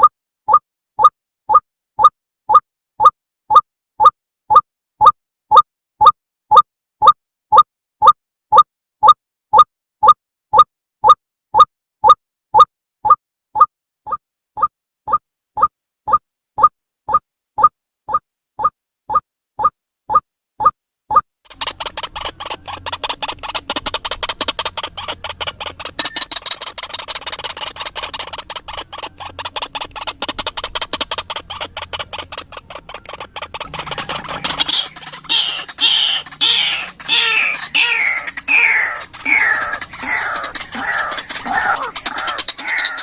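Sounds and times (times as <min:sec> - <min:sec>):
rapid clicking chatter: 0:21.5 - 0:43.0
waterhen calling: 0:21.5 - 0:43.0.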